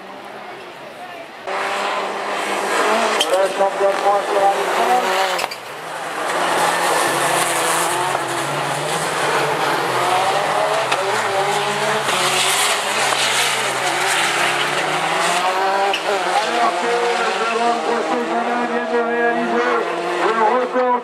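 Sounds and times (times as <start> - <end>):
racing car engines revving: 0.0 - 21.0.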